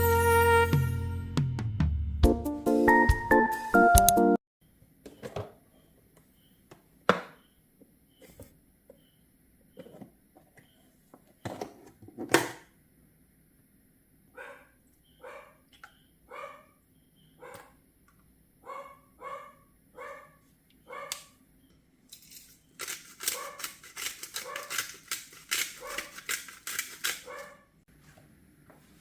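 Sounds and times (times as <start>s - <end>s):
dog barking: 14.4s - 15.6s, 16.3s - 16.8s, 17.4s - 17.8s, 18.6s - 21.4s, 23.3s - 23.7s, 24.4s - 24.8s, 25.8s - 26.2s, 27.2s - 27.8s.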